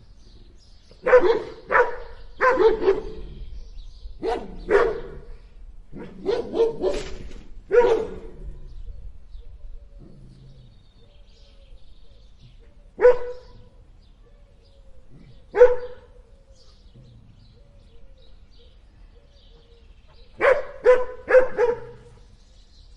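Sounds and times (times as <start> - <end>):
dog barking: 1.0 - 3.2, 4.2 - 5.3, 6.0 - 8.4, 13.0 - 14.5, 15.5 - 16.1, 20.4 - 22.2.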